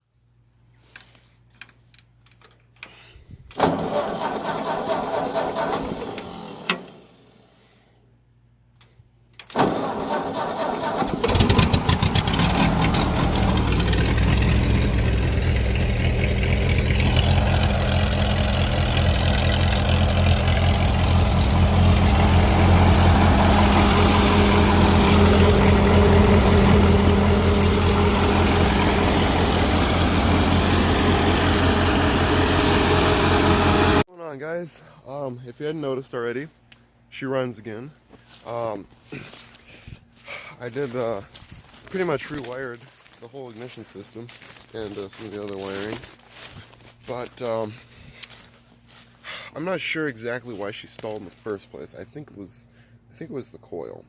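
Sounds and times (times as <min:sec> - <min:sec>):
tractor engine running: 0:03.6 - 0:07.3, 0:09.6 - 0:34.0
starter cranking: 0:09.5 - 0:34.0.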